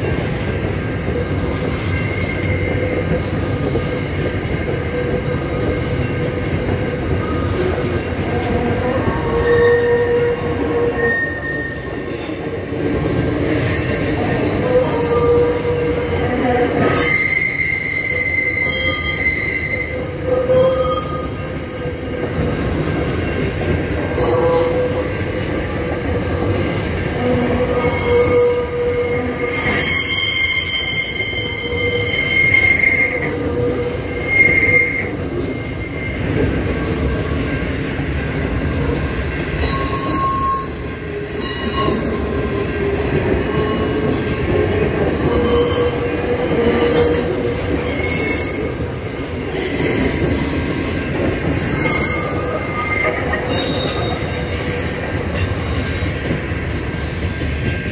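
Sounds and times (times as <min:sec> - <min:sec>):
train wheels rumbling on rails: 0:00.0 - 0:57.9
high-pitched wheel squeal: 0:01.8 - 0:03.4, 0:09.3 - 0:12.2, 0:16.8 - 0:21.7, 0:27.7 - 0:36.3, 0:39.6 - 0:40.8, 0:45.3 - 0:48.9, 0:51.6 - 0:56.0.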